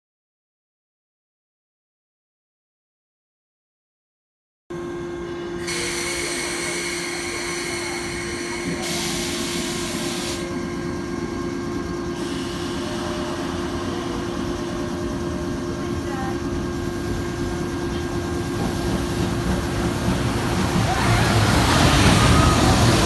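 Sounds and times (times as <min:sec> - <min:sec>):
train hum: 0:04.7 - 0:23.0
freight train wheels on rails: 0:05.6 - 0:23.0.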